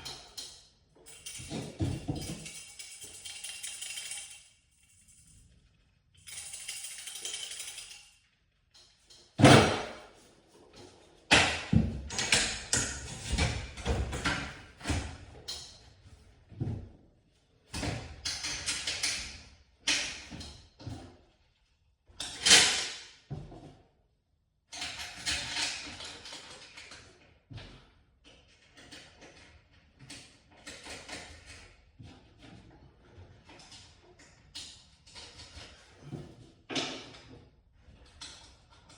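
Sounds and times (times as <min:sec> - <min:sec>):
jingling metal clatter: 0:00.0 - 0:09.2.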